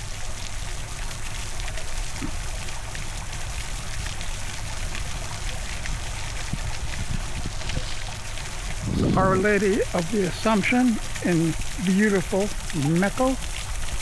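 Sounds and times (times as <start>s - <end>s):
rain and spray hiss: 0.0s - 14.0s
small pattering ticks: 0.0s - 14.0s
wind buffeting microphone: 3.2s - 12.8s.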